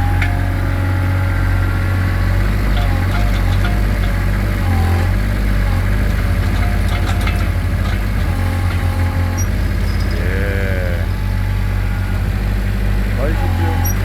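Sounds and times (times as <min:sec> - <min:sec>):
excavator engine humming: 0:00.0 - 0:14.0
clicks and knocks: 0:02.2 - 0:10.2.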